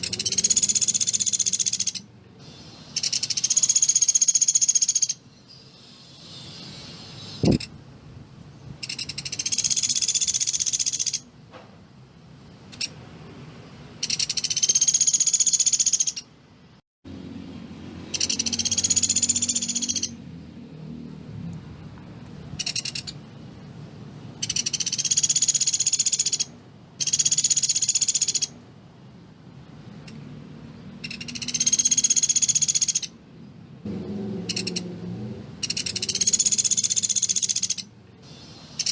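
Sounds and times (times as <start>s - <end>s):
bird rattling trills: 0.0s - 5.2s, 8.8s - 11.3s, 14.0s - 16.3s, 18.1s - 20.2s, 22.6s - 23.2s, 24.4s - 28.6s, 31.0s - 33.2s, 34.5s - 34.8s, 35.6s - 38.9s.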